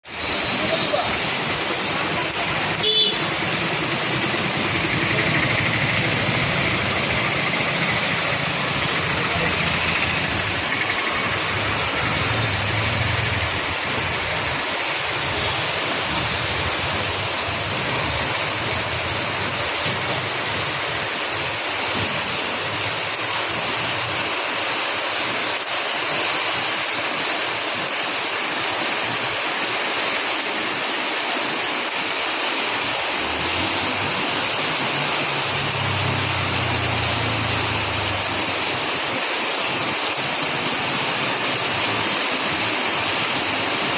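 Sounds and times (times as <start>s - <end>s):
heavy rain pouring: 0.0s - 43.9s.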